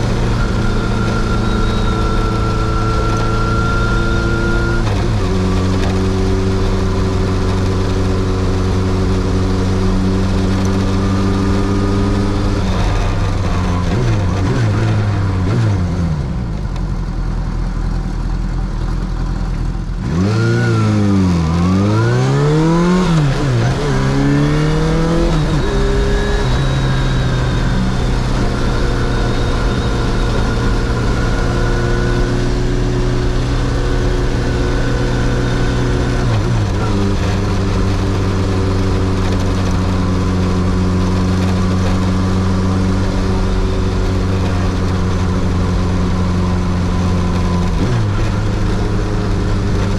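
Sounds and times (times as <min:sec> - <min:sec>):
motorcycle engine revving: 0:00.0 - 0:17.2, 0:17.8 - 0:49.9.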